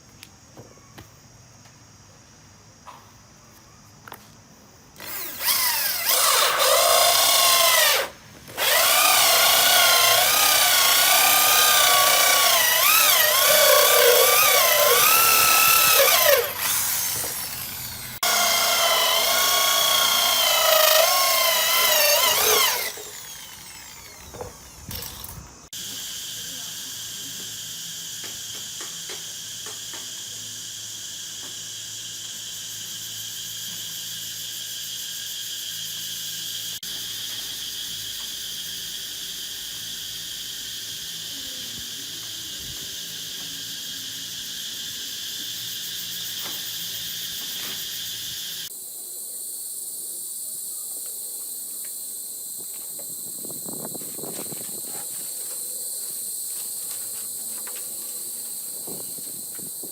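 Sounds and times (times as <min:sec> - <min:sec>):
power drill whining: 0:05.0 - 0:25.4.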